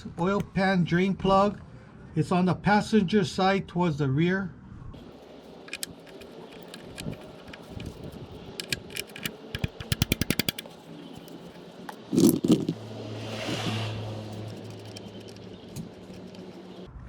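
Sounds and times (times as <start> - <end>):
ratchet clicking rapidly: 5.0 - 12.8, 13.4 - 16.9.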